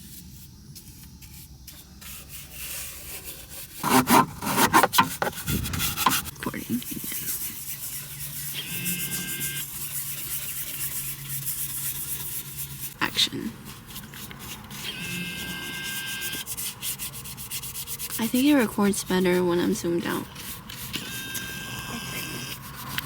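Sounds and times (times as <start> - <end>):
rubbing and scraping on microphone: 0.0 - 17.0.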